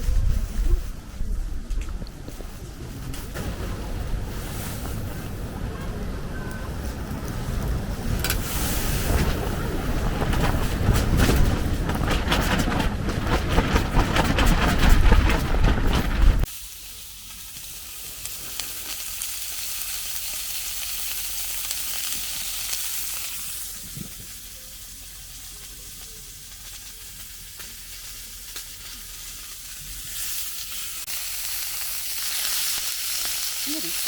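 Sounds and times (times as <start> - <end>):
food sizzling in a pan: 16.5 - 34.0.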